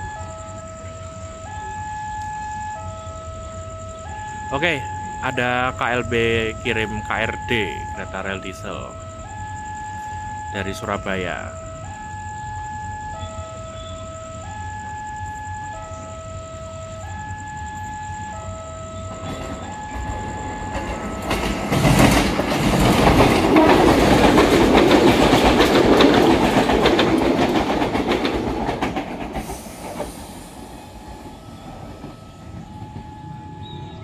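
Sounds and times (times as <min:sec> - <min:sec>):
train passing at speed: 0:00.0 - 0:34.0
two-tone electronic warning signal: 0:00.0 - 0:34.0
wheels clacking over rail joints: 0:19.0 - 0:33.8.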